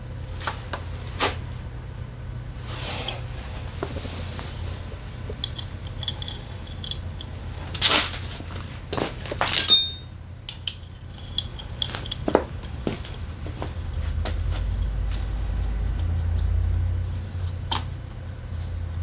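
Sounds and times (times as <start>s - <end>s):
metal tools clinking and clattering: 9.0s - 10.2s
metal clank: 9.4s - 10.2s.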